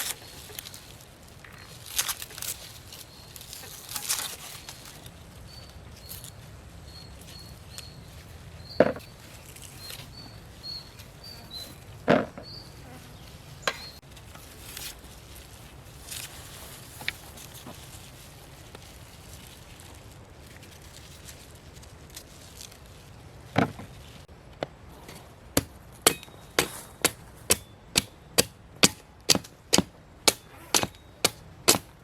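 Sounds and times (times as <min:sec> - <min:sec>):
rustling handling noise: 0:00.0 - 0:32.0
sharp knocks: 0:25.6 - 0:31.9.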